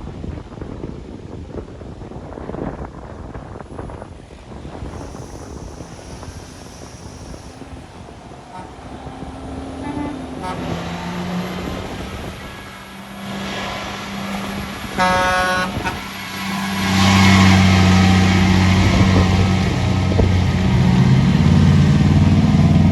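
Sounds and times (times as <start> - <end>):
heavy truck engine: 3.6 - 22.9
truck horn toot: 8.4 - 20.4.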